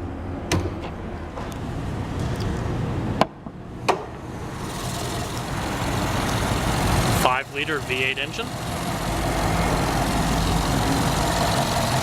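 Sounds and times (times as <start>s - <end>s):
car engine idling: 4.4s - 12.0s.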